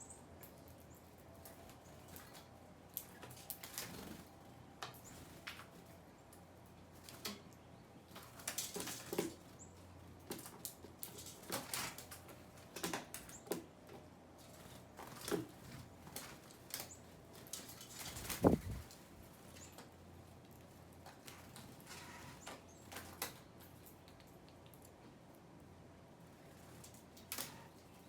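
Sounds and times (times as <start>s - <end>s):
bird wings fluttering: 17.7s - 19.1s.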